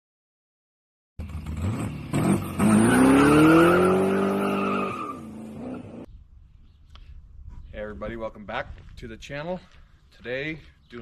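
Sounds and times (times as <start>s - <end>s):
car engine revving: 1.2s - 6.0s.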